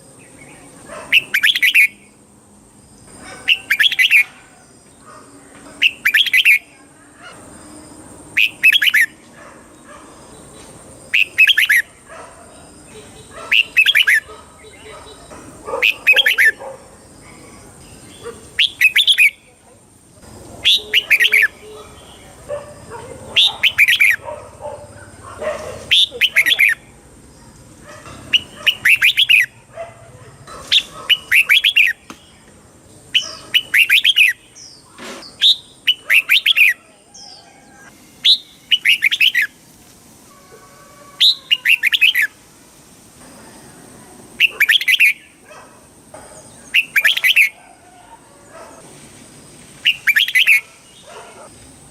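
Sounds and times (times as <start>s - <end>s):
bird singing whistled phrases: 1.2s - 2.0s, 8.4s - 9.1s, 18.6s - 19.4s, 28.4s - 29.5s, 33.2s - 34.4s, 38.2s - 39.5s, 41.2s - 42.3s, 46.8s - 47.5s, 49.9s - 50.6s.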